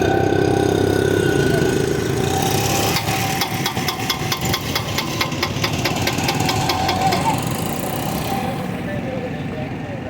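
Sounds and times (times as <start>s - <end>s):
rapid knocking: 2.9s - 7.8s.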